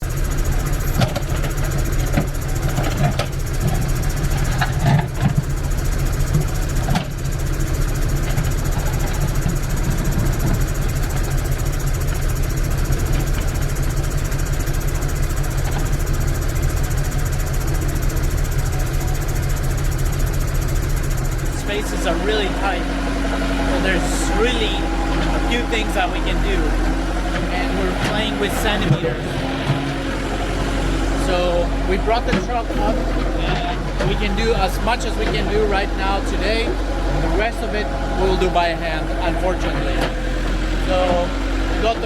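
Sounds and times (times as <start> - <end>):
heavy machine engine running: 0.0 - 42.0
knocks and clatter: 0.8 - 7.3.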